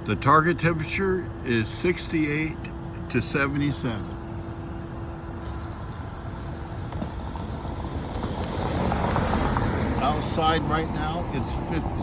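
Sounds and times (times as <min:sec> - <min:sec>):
road traffic rumble: 0:00.0 - 0:12.0
vehicle passing by: 0:05.4 - 0:12.0.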